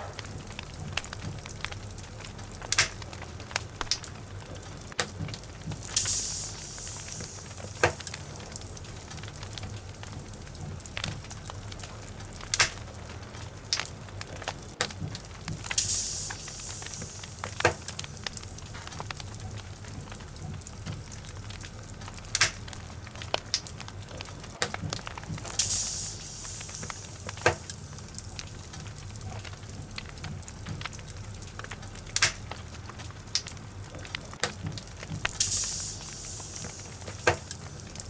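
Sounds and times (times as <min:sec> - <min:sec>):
logs crackling in fireplace: 0:00.0 - 0:38.0
low steady rumble: 0:00.0 - 0:38.0
sharp pops from fire: 0:00.0 - 0:38.0
brief hiss: 0:05.9 - 0:08.5.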